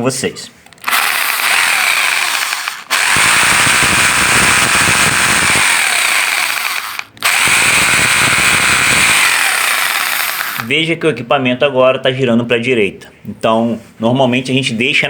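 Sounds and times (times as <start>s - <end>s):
rotary hammer motor whining: 0.8s - 10.7s.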